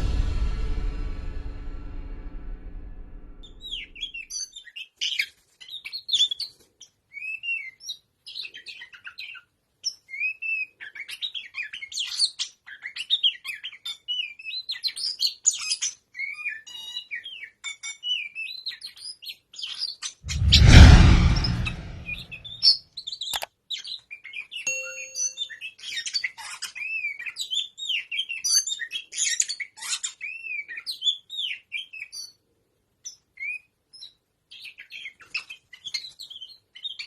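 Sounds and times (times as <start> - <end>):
loud noisy swell: 0.0 - 3.9, 20.3 - 22.2.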